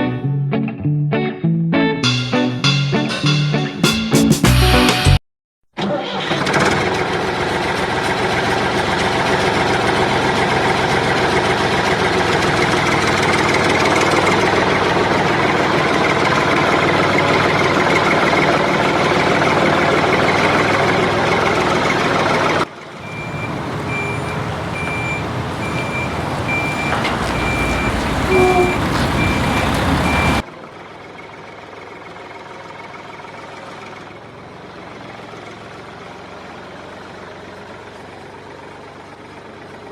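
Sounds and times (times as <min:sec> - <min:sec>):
reversing beeper: 0:23.0 - 0:30.4.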